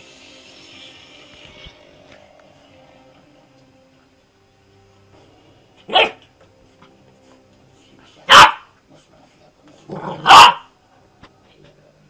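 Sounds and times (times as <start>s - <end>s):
dog barking: 5.9s - 6.2s, 8.2s - 8.8s, 10.0s - 10.7s.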